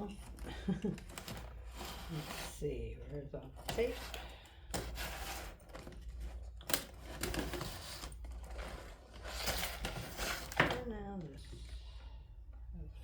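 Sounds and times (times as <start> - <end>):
packaging rustling: 4.8 - 10.9.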